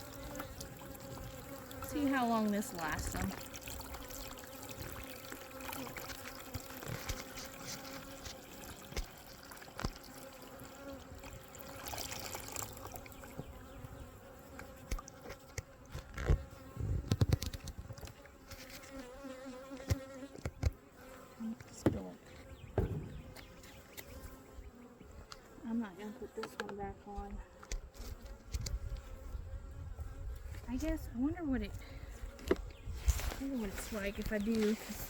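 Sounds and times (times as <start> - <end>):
honeybees buzzing: 0.0 - 35.0
loud knocks: 22.7 - 23.4.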